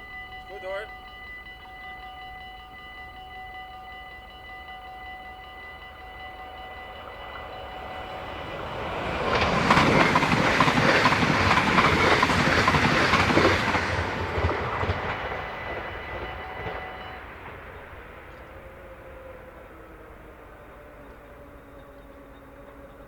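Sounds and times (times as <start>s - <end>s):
level crossing warning bell: 0.0s - 23.0s
train wheels clattering over rail joints: 7.9s - 18.6s.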